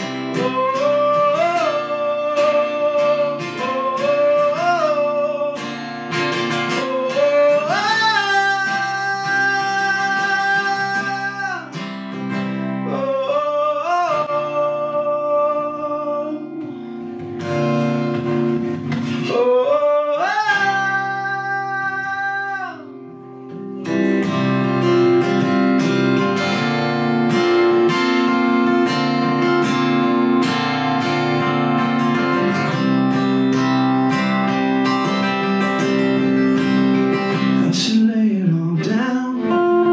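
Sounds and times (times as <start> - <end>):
strummed acoustic guitar: 0.0 - 39.9
person singing long bending notes: 0.2 - 5.7, 6.6 - 11.8.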